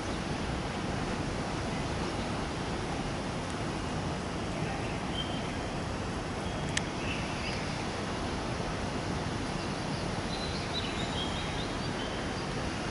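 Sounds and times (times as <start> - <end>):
outdoor background noise: 0.0 - 12.9
small birds chirping: 4.7 - 5.7, 6.4 - 8.0, 9.2 - 12.6.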